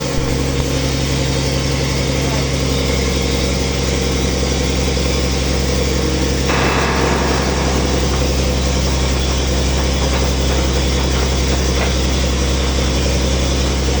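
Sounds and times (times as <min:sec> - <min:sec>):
backhoe diesel engine droning: 0:00.2 - 0:14.0
higher-pitched noise: 0:06.5 - 0:09.8.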